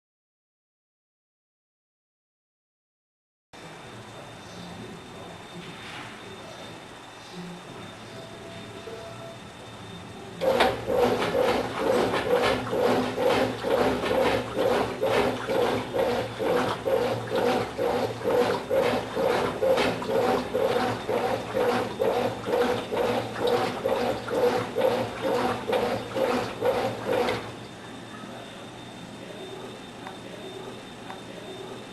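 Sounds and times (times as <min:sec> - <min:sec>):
washing machine motor hum: 0:03.6 - 0:31.9
washing machine agitator swishing water: 0:10.4 - 0:31.9.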